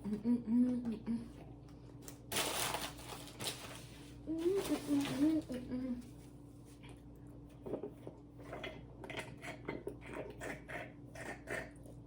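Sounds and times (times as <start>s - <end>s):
faint steady hum: 0.0s - 12.0s
chewing and mouth sounds: 7.6s - 12.0s.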